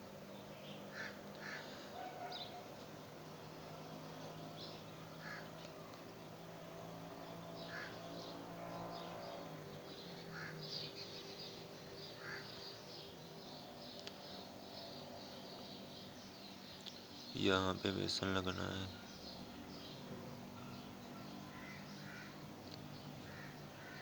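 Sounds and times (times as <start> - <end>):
faint bird calls: 0.0 - 6.4, 7.2 - 24.0.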